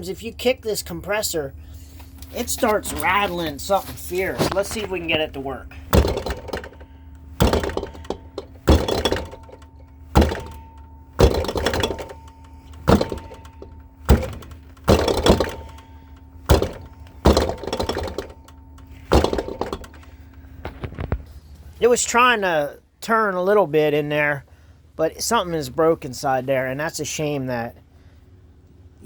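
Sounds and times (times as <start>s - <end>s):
faint compressor hum: 0.0s - 29.0s
heavy thunks of kicking: 4.0s - 21.2s.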